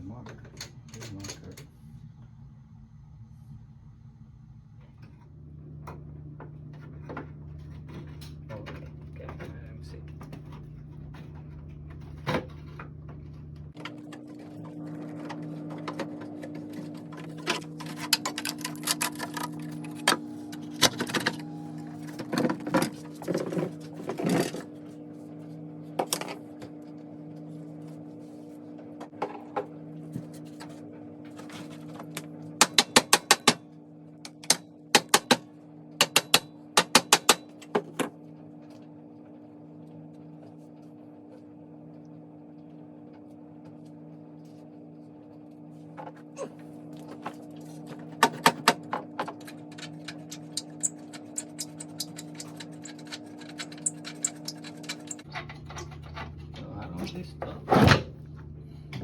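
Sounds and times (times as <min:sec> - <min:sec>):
low hum: 0:00.0 - 0:32.5.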